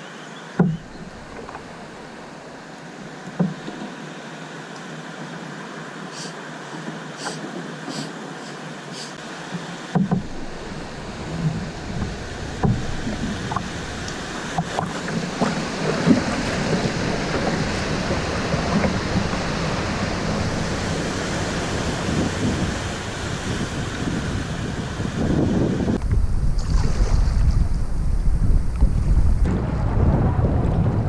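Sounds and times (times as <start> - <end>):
river water rushing and splashing: 0.0 - 26.0
sharp knocks: 0.6 - 1.6, 9.9 - 10.6, 11.4 - 16.6
wind rumbling on microphone: 0.6 - 2.4, 10.0 - 31.0.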